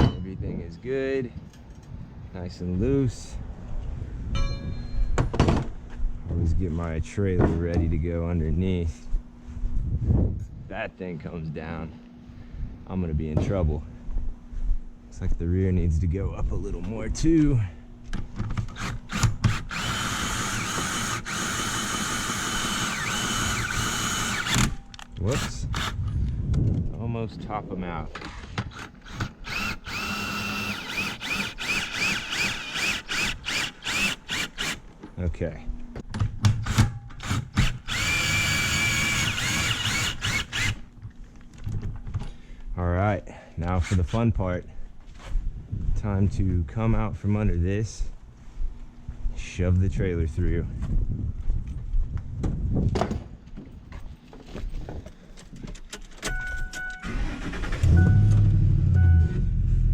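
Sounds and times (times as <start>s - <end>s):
cordless drill motor whine: 18.6s - 26.0s, 28.7s - 34.8s, 37.2s - 40.9s
electronic warning chime: 56.3s - 57.2s, 57.9s - 59.5s.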